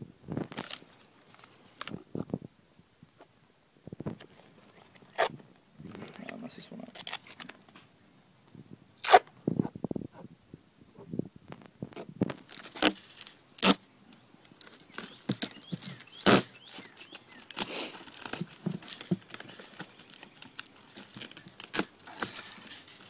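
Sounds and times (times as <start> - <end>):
duct tape ripping: 0.4 - 2.0, 4.7 - 5.4, 6.9 - 7.8, 9.0 - 9.3, 11.5 - 13.8, 14.5 - 23.0
foil crinkling and rustling: 0.4 - 2.0, 6.0 - 7.8, 12.2 - 13.8, 14.4 - 23.0.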